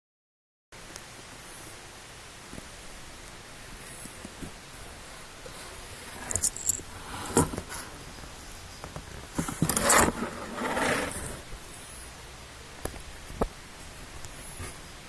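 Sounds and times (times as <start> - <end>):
rustling and scraping: 3.9 - 11.6.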